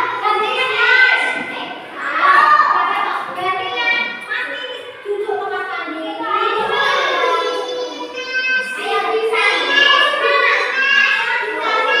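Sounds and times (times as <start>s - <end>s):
child singing: 6.2s - 12.0s.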